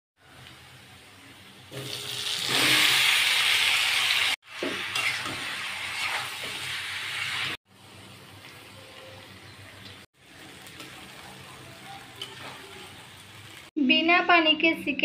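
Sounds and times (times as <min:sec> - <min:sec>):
food sizzling in hot oil: 0:00.2 - 0:13.8
metal spatula stirring: 0:12.0 - 0:12.8.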